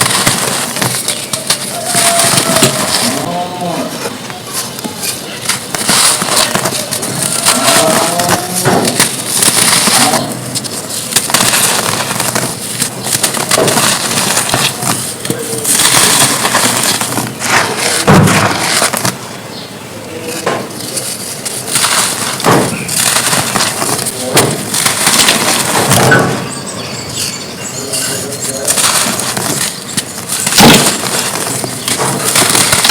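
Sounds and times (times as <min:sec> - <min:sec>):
dirt clods being crushed: 0:00.0 - 0:19.4, 0:20.0 - 0:32.9.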